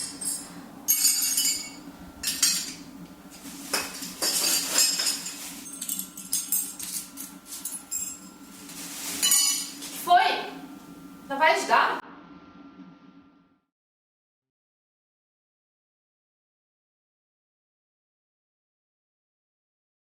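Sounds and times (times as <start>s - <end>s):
steady low hum: 0.0s - 13.7s
metallic clinking of dishes: 3.8s - 8.2s, 9.2s - 9.8s.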